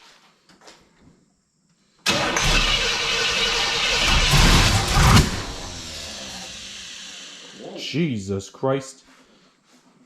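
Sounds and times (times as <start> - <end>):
car engine starting and running: 2.1 - 7.7.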